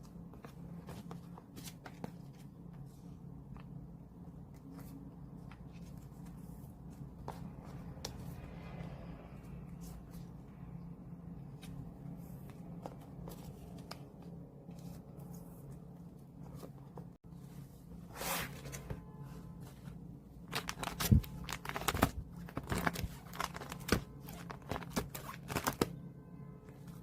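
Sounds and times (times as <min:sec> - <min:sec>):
low room hum: 0:00.0 - 0:27.0
packaging rustling and crinkling: 0:20.5 - 0:25.9.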